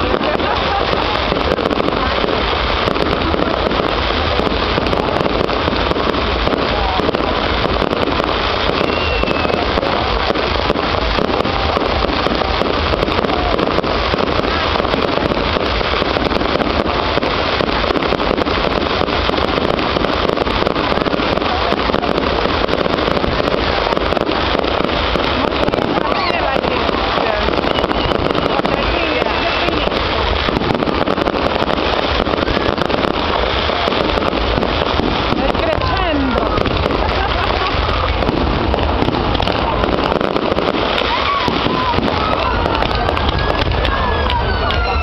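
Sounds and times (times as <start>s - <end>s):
crowd voices: 0.0s - 45.0s
fireworks crackling pops: 0.0s - 45.0s.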